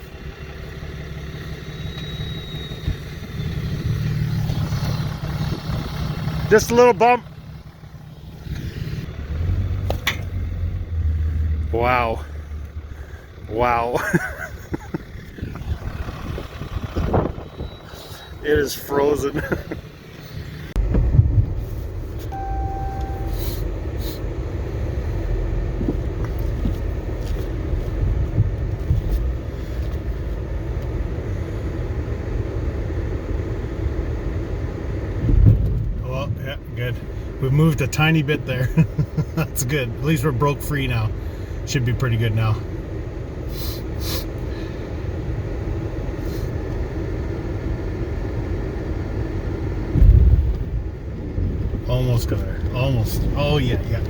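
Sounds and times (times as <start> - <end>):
truck engine under load: 0.0 - 54.0
short beep: 1.8 - 3.0, 22.3 - 23.7.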